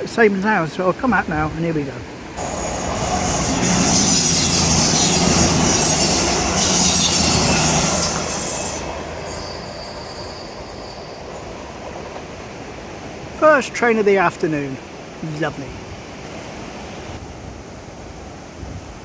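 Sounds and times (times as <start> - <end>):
train engine hum: 1.0 - 13.4
wheels rushing on rail: 2.0 - 13.4
high whine from wheels: 2.4 - 12.0.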